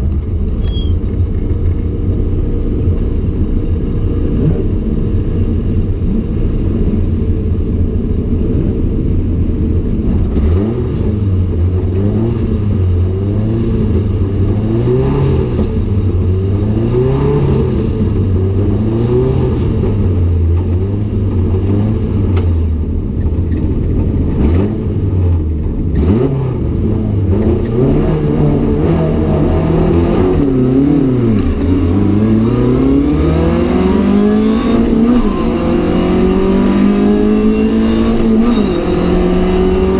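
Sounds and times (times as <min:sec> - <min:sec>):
race car engine at high revs: 0:01.2 - 0:39.9.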